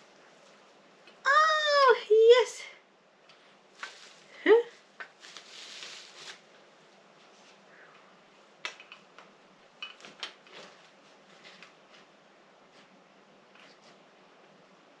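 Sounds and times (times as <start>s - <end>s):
packaging rustle: 5.1s - 6.5s.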